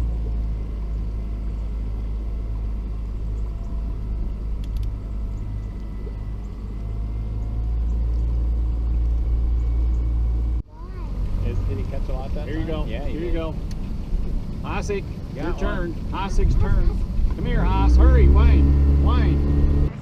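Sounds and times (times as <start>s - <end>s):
faint steady whine: 0.0s - 10.6s
outboard motor rumbling: 0.0s - 20.0s.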